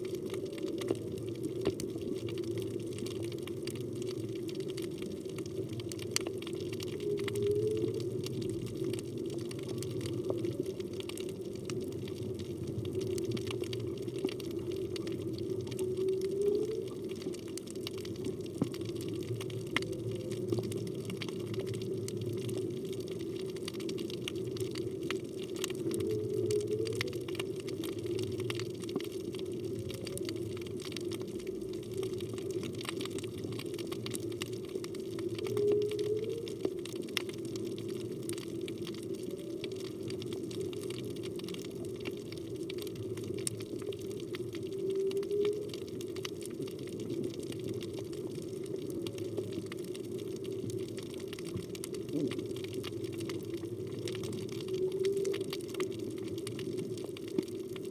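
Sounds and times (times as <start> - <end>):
fine crackling clicks: 0.0 - 57.9
underwater water noise: 0.0 - 57.9
whale calls: 6.6 - 9.1, 15.0 - 17.9, 25.6 - 28.4, 35.1 - 37.4, 44.1 - 46.3, 54.0 - 56.2.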